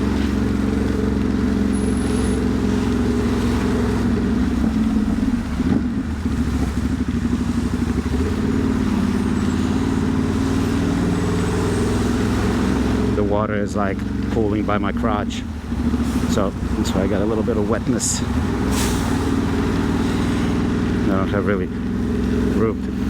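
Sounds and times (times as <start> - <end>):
motorcycle engine cruising: 0.0 - 23.0
wind and road noise: 0.0 - 23.0.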